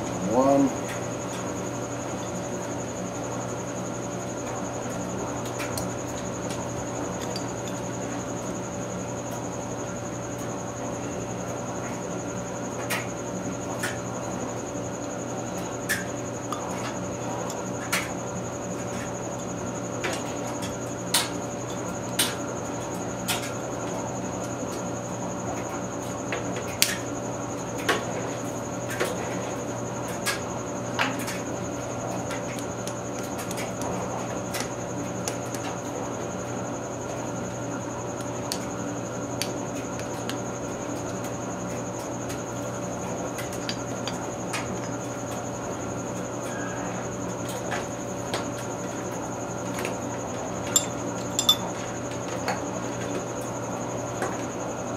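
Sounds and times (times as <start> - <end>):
steady hum: 50.0 - 52.1
metal engine parts clicking: 50.7 - 51.7.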